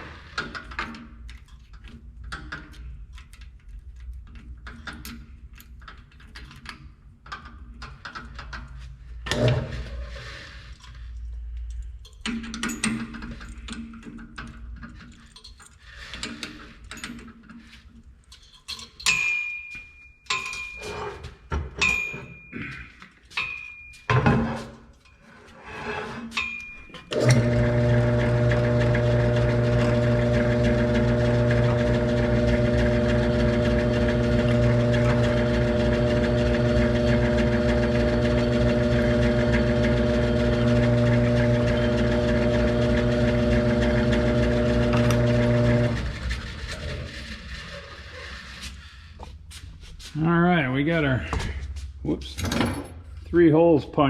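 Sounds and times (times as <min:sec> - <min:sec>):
metal clinks and knocks: 0:10.8 - 0:25.3, 0:26.3 - 0:27.1
drill press motor humming: 0:27.1 - 0:47.7.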